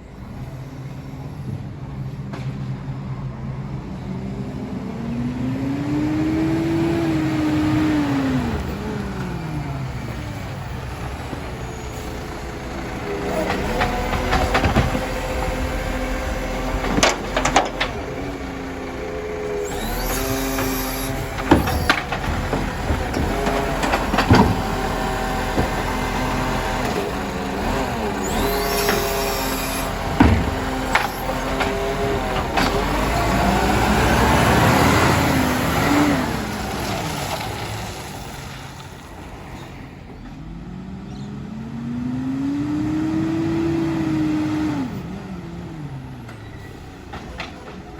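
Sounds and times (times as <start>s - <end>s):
diesel engine running: 0.0s - 47.9s
hydraulic whining with hissing: 6.0s - 36.8s.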